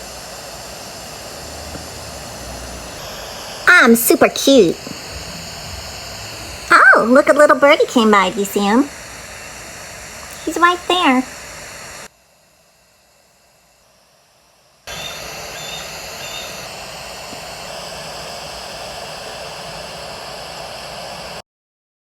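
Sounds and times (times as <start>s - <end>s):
wind on microphone: 4.7s - 7.3s
small bird chirping: 10.1s - 11.3s, 14.9s - 16.7s.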